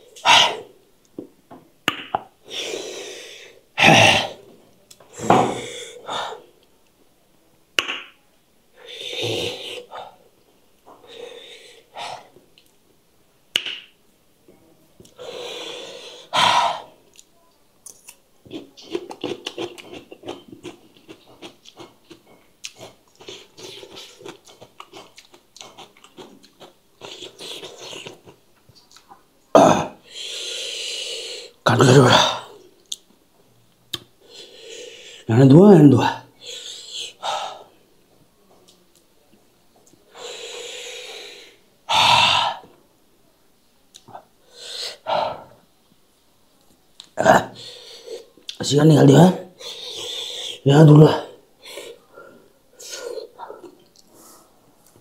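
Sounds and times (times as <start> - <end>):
man breathing heavily: 5.1 - 6.5
crunchy cucumber chewing: 17.9 - 29.2.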